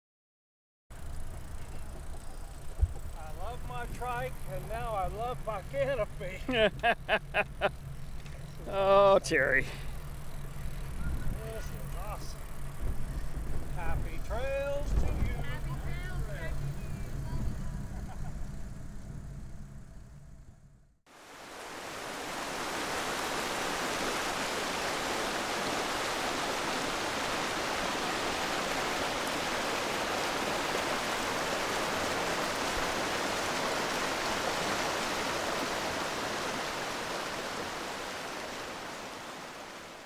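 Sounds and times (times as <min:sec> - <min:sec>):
steady rushing noise: 0:09.2 - 0:17.9, 0:21.1 - 0:40.0.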